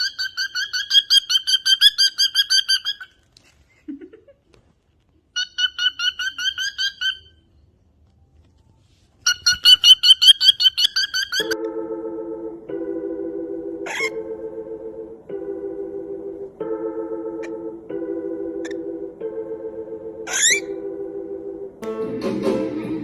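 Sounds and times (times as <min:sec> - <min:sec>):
bird chirping in fast runs: 0:09.2 - 0:11.6.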